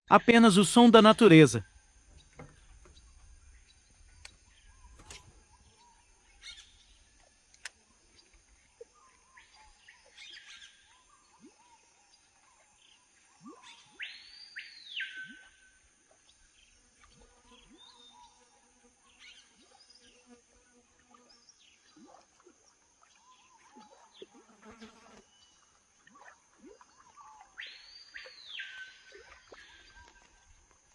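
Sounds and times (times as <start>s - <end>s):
bird chirps: 1.6s - 7.3s, 8.2s - 15.7s, 25.3s - 30.6s
high insect buzz: 16.5s - 22.0s, 24.2s - 25.6s.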